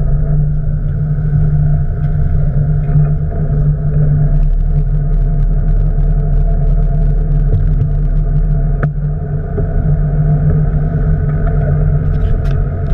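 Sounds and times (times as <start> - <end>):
boat engine running: 0.0 - 12.9.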